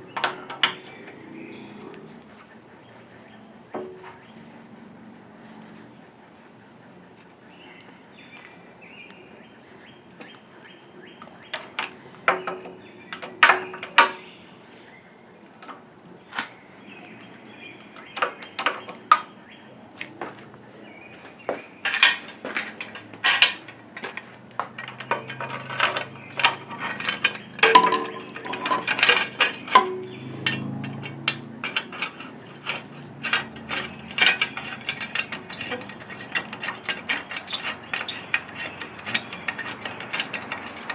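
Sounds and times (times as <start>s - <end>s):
hand tools clinking on metal: 21.8s - 40.9s.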